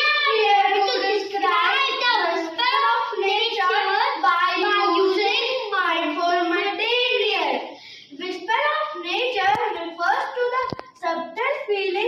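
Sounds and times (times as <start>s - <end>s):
child singing: 0.0s - 2.7s.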